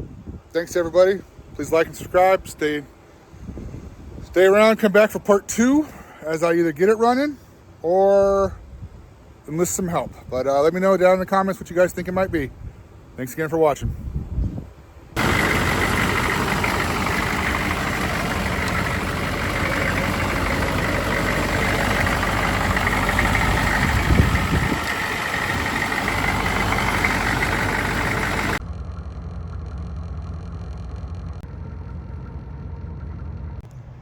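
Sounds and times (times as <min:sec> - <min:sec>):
diesel engine running: 0:15.2 - 0:34.0.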